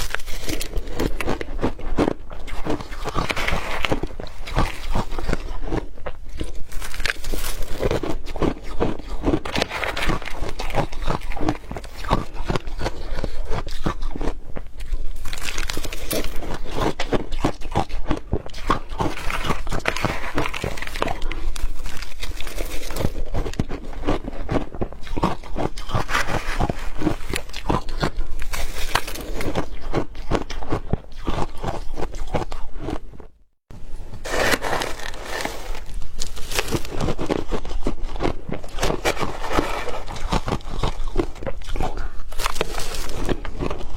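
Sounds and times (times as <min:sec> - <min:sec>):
chewing crushed ice: 0:00.0 - 0:33.4, 0:34.2 - 0:43.9.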